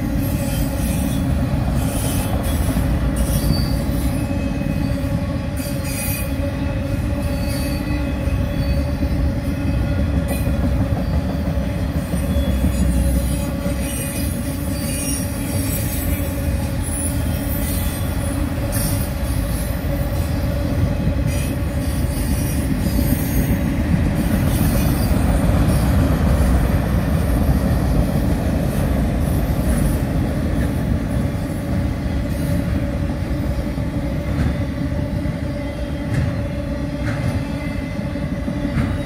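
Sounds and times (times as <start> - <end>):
train wheels rumbling on rails: 0.0 - 39.0
wheel squeal: 0.2 - 6.4, 12.1 - 19.6.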